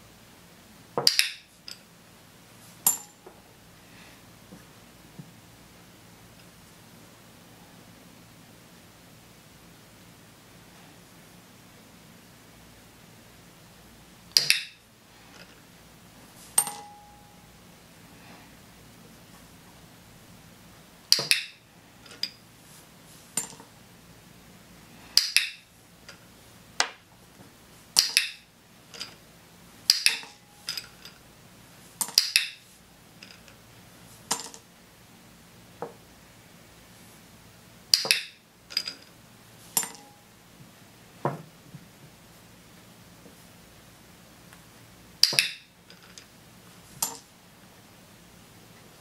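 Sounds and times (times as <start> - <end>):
small objects clinking on tabletop: 29.9 - 31.2, 34.3 - 34.6, 38.0 - 39.2, 39.8 - 40.2.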